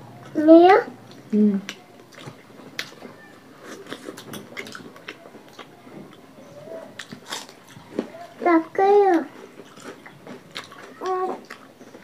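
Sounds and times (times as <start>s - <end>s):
people chewing and lip smacking: 0.0s - 12.0s.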